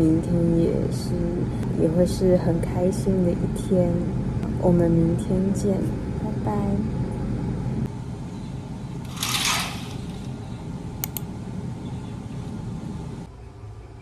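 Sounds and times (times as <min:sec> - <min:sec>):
sharp clicks: 0:11.0 - 0:11.3.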